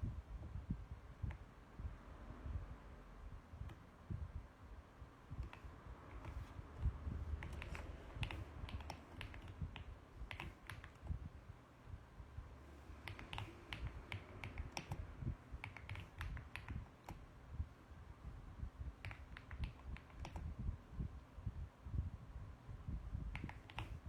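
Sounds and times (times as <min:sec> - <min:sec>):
mechanical keyboard key clicks: 0:07.4 - 0:11.2, 0:13.0 - 0:17.2, 0:19.0 - 0:20.5, 0:23.3 - 0:24.0.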